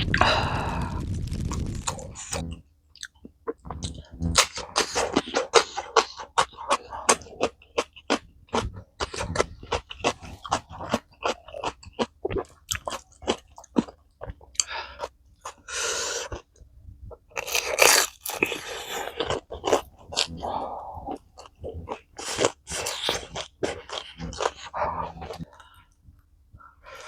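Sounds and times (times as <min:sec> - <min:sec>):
breathy noises: 0:00.0 - 0:02.6, 0:03.6 - 0:07.9, 0:08.5 - 0:11.1, 0:18.3 - 0:27.0
wet chewing and crunching: 0:00.0 - 0:27.0.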